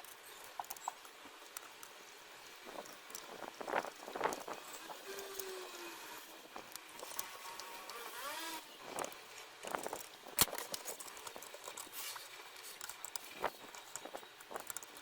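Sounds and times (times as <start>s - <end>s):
clicks and scrapes of tools: 6.6s - 8.2s, 8.9s - 15.0s.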